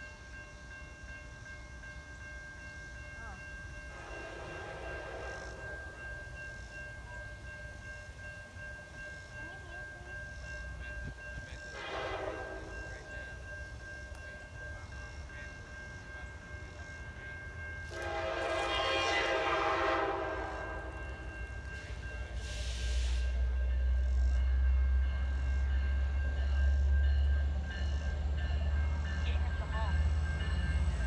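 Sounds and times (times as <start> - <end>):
locomotive air horn blasts: 3.9 - 5.6, 11.8 - 12.7, 17.8 - 21.0.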